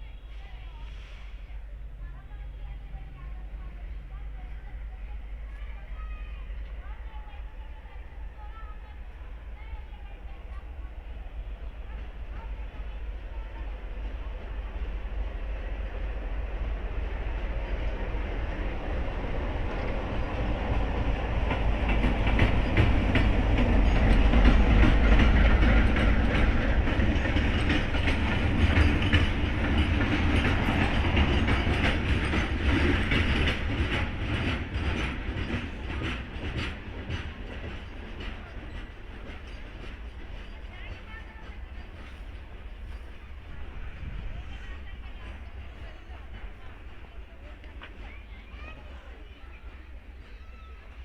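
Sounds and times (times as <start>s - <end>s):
diesel locomotive engine rumble: 0.0s - 51.0s
wheels clicking over rail joints: 17.3s - 50.6s.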